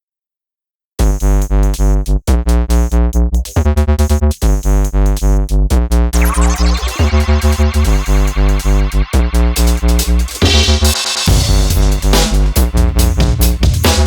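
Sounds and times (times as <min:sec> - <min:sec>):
electronic music with pulsing bass: 0:03.9 - 0:14.0.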